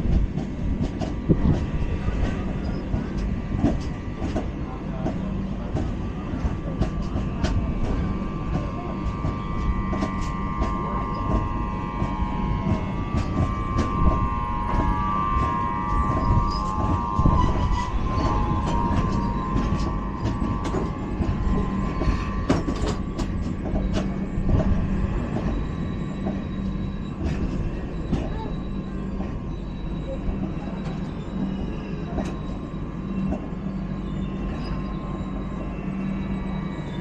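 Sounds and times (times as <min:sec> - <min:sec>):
train wheels rumbling on track: 0:00.0 - 0:37.0
faint high ringing: 0:08.7 - 0:23.2.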